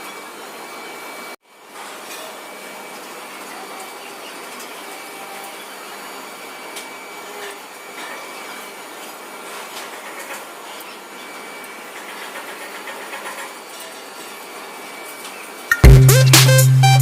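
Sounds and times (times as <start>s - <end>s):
machine running: 0.0s - 17.0s.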